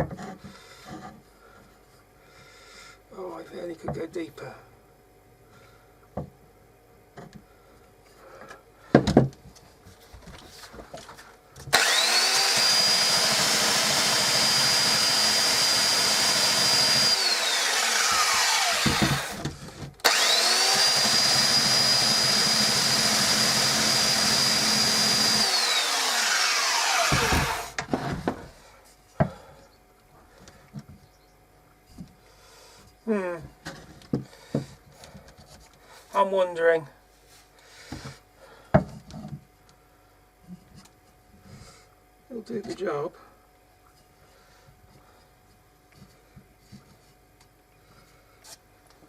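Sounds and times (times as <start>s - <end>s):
electric sander on wood: 11.7s - 27.8s.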